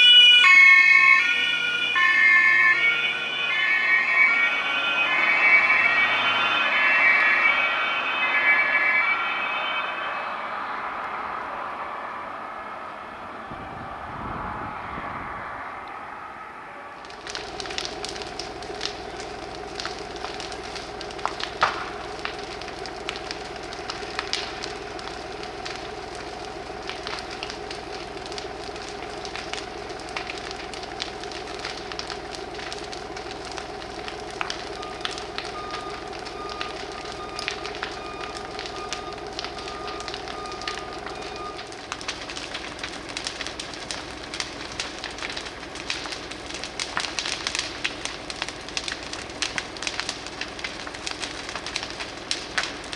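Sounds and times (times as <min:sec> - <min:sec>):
short beeps: 0:00.0 - 0:10.5
fire crackling and popping: 0:00.0 - 0:11.9, 0:16.9 - 0:52.9
steady droning hum: 0:01.1 - 0:52.9.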